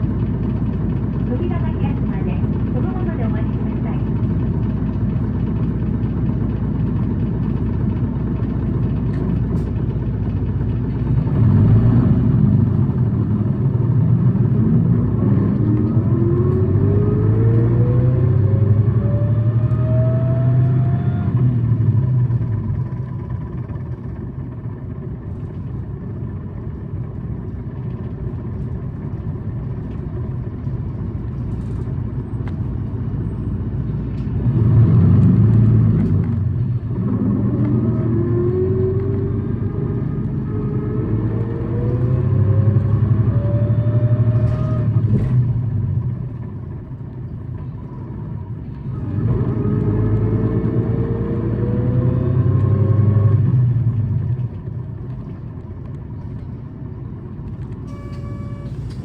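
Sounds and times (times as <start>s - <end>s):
bus engine droning and whining: 0.0s - 59.0s.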